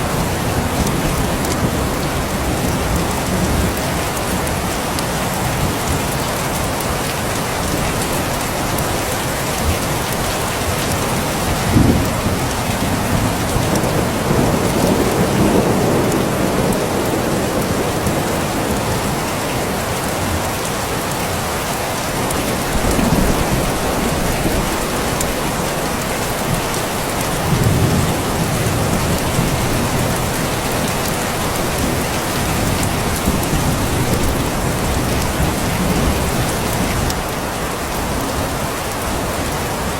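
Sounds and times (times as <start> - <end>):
heavy rain: 0.0 - 39.9
thunder rolling: 11.2 - 19.3.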